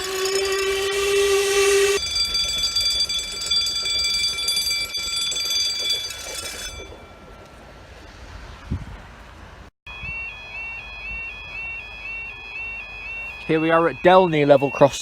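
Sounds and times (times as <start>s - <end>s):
low warning tone with hiss: 0.0s - 3.6s, 9.2s - 15.0s
high-pitched electronic alarm tone: 0.0s - 3.9s, 9.9s - 15.0s.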